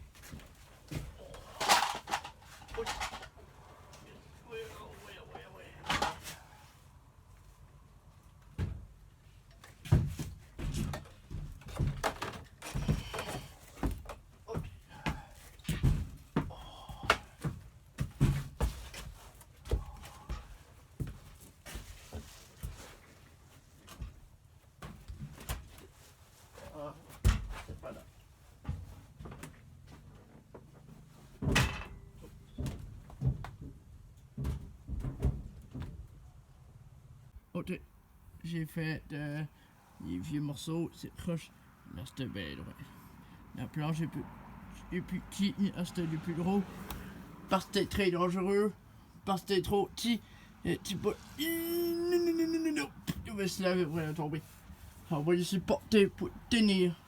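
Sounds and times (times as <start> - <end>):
knocks and thumps: 9.8 - 21.3, 31.4 - 36.2
irregular knocks and thumps: 31.4 - 36.2.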